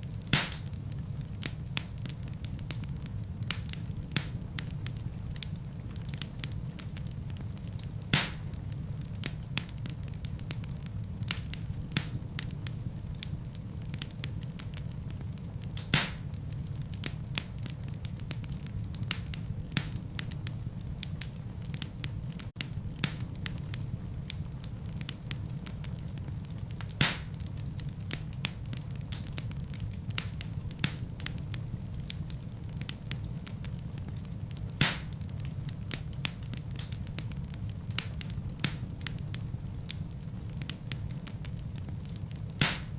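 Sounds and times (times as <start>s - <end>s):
fire crackling in fireplace: 0.0s - 42.9s
loud fire pops: 0.0s - 42.9s.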